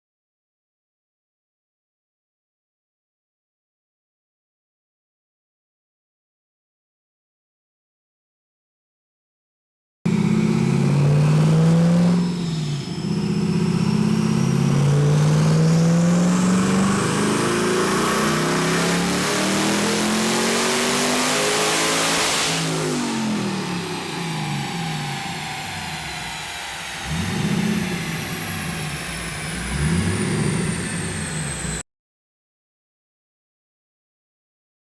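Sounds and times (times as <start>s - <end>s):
car engine revving: 10.1s - 31.8s.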